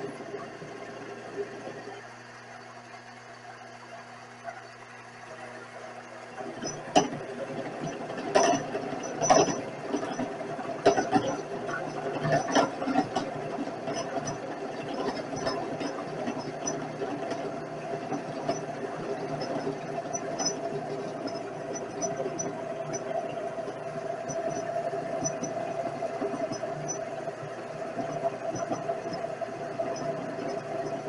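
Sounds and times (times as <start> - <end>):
light irregular ticking: 6.4 - 31.0.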